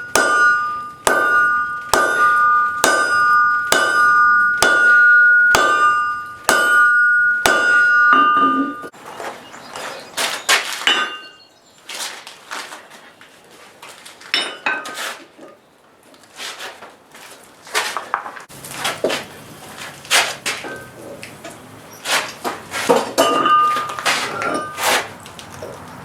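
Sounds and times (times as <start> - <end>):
metal tools clinking and scraping: 0.0 - 9.0, 10.7 - 11.4, 14.2 - 15.6, 19.8 - 25.8.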